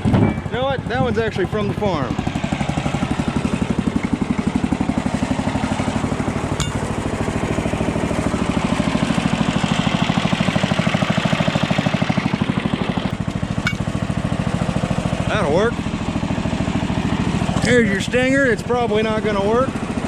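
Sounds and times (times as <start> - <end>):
welder engine idling: 2.4 - 20.0
metallic clink: 6.6 - 7.0, 13.6 - 13.9.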